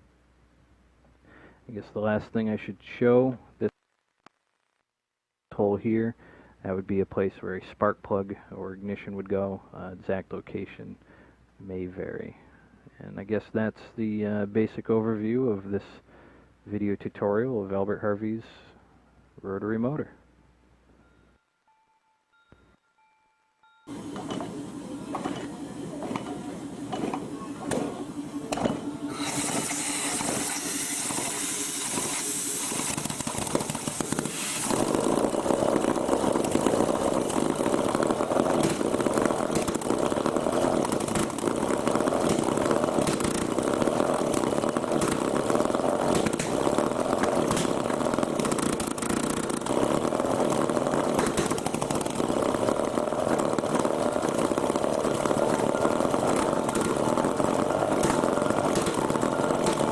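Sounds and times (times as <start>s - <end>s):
small rotary engine starting: 23.9s - 59.9s
hiss: 29.1s - 50.5s.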